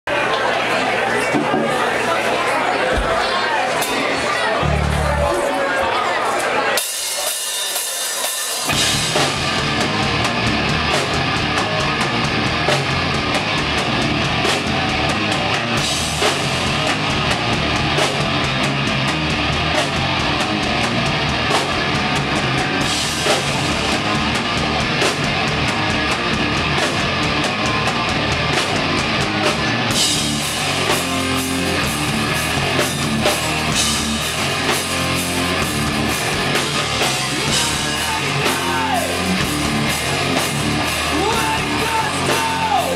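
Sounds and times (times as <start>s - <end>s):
pounding drum kit: 6.8s - 42.9s
electric guitar: 8.6s - 42.9s.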